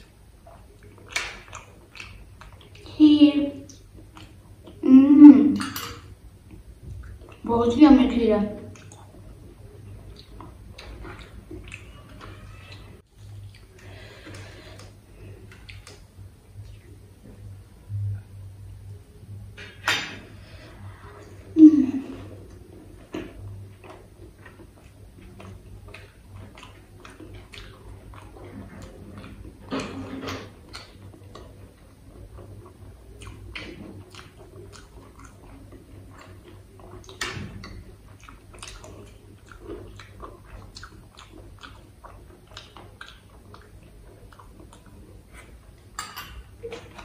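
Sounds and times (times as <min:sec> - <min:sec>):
wet chewing with mouth clicks: 0:00.0 - 0:03.0, 0:03.6 - 0:07.6, 0:08.6 - 0:18.3, 0:20.4 - 0:47.0.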